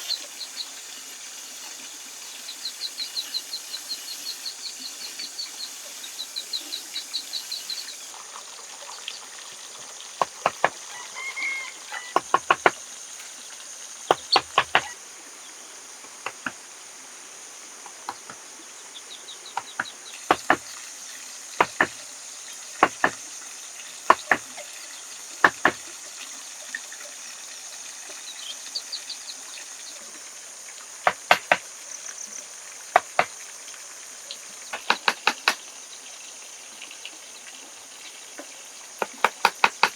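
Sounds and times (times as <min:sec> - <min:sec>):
high drone of insects: 0:00.0 - 0:39.9
sharp knocks: 0:10.2 - 0:10.8, 0:12.1 - 0:12.8, 0:14.1 - 0:15.0, 0:16.2 - 0:16.6, 0:19.6 - 0:20.7, 0:21.6 - 0:22.0, 0:22.8 - 0:23.2, 0:24.1 - 0:24.4, 0:25.4 - 0:25.8, 0:31.1 - 0:31.6, 0:34.8 - 0:35.6.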